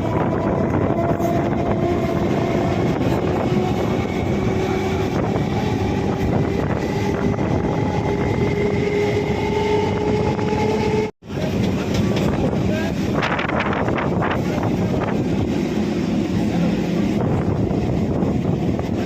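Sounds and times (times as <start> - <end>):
train motor whine: 0.0 - 12.4
electric train rumbling: 0.0 - 19.0.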